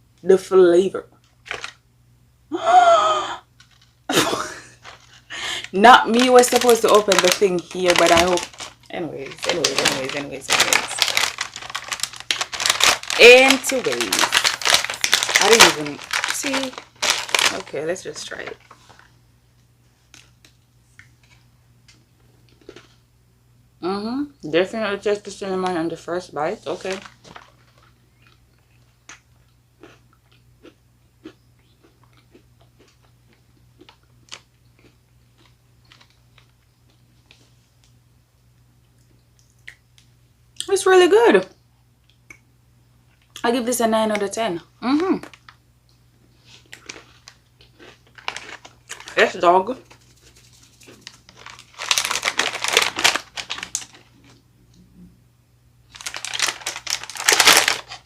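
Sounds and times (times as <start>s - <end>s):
plastic packaging crinkling: 1.2s - 1.8s, 3.6s - 19.1s, 26.5s - 28.8s, 33.8s - 36.6s, 46.4s - 54.4s, 55.9s - 58.0s
person chewing snack: 22.2s - 23.0s, 28.1s - 37.1s, 46.5s - 49.2s.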